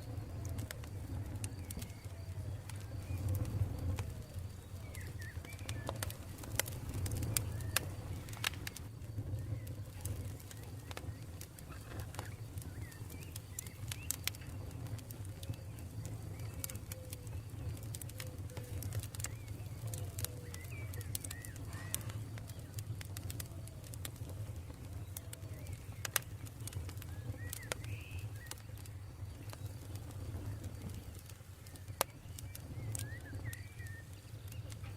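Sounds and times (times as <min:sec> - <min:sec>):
campfire crackling: 0:00.0 - 0:34.9
birds calling: 0:01.5 - 0:08.8, 0:09.4 - 0:23.1.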